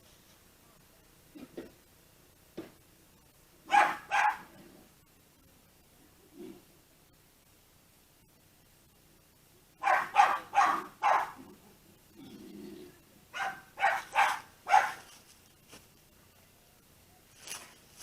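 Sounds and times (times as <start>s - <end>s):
dog barking: 3.7s - 4.6s, 9.8s - 11.5s, 13.3s - 15.1s.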